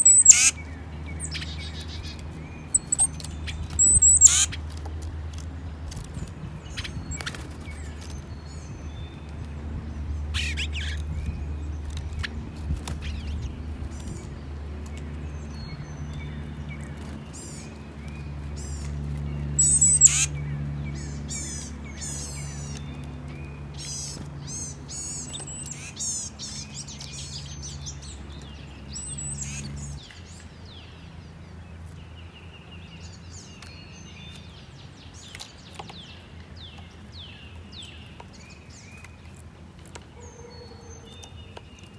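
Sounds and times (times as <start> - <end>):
steady low hum: 0.0 - 32.1
songbirds chirping: 0.0 - 41.9.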